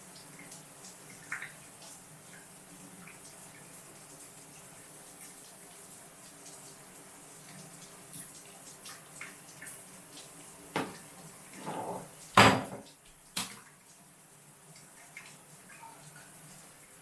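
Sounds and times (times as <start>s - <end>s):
running water hiss: 0.0s - 17.0s
hard objects knocking and clattering: 11.7s - 12.9s.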